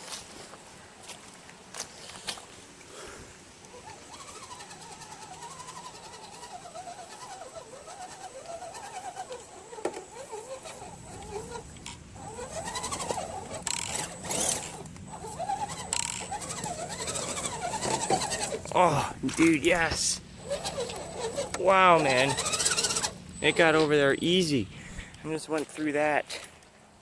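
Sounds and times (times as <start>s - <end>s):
electric motor and gears whining: 3.6s - 26.0s
knocks and scrapes over obstacles: 4.2s - 23.2s.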